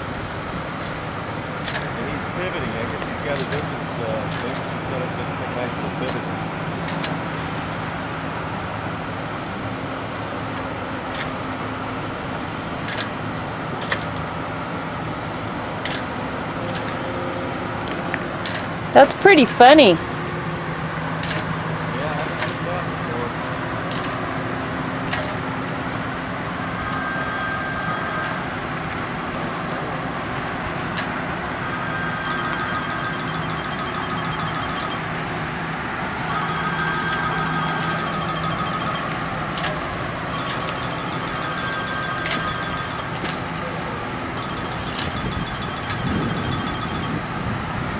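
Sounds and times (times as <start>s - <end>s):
boat engine droning: 0.0s - 47.9s
high whine with rapid ticking: 31.5s - 43.7s.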